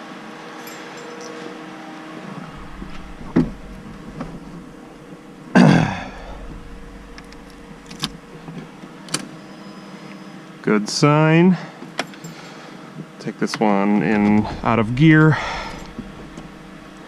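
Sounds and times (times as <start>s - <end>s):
low steady rumble: 2.2s - 10.1s, 13.9s - 17.0s
car door thump with creak: 2.5s - 9.3s.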